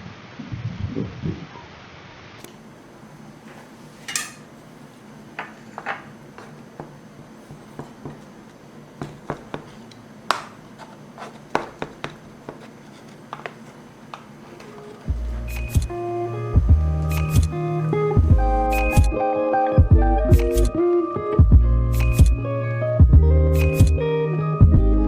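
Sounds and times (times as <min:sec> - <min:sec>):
dishes and utensils clinking: 0:03.5 - 0:04.6, 0:05.4 - 0:08.3.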